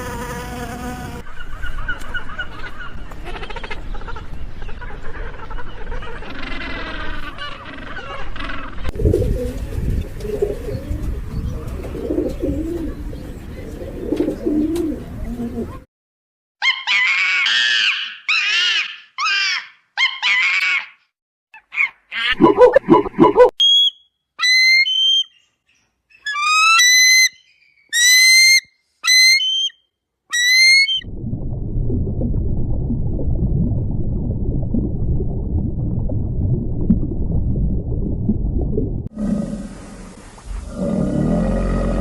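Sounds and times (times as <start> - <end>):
loud animal sound: 3.2 - 8.9
low rumbling noise: 8.9 - 14.1, 31.0 - 42.0
whistle-like animal calls: 23.2 - 25.3, 26.3 - 31.0.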